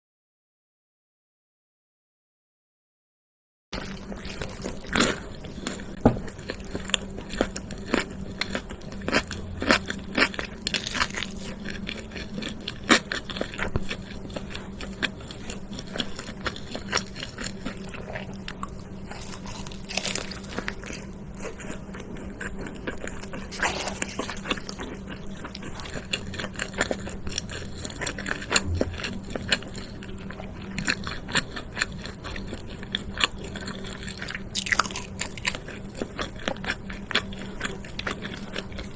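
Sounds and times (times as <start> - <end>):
person chewing food: 3.8 - 38.9
sharp crunches: 19.1 - 20.8.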